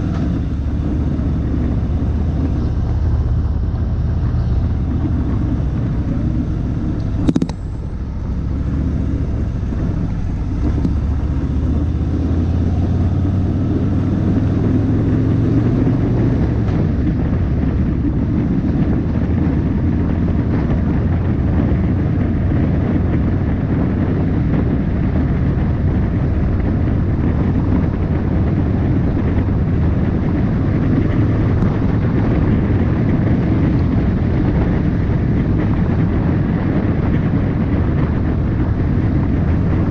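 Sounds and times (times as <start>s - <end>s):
motorcycle engine drone: 0.0s - 39.9s
wind rushing over microphone: 0.0s - 39.9s.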